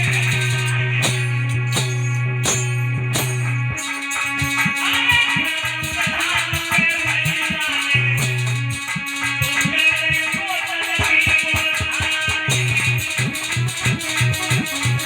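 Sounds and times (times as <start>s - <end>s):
held bass notes: 0.0s - 4.8s
quick percussion beat: 0.0s - 15.0s.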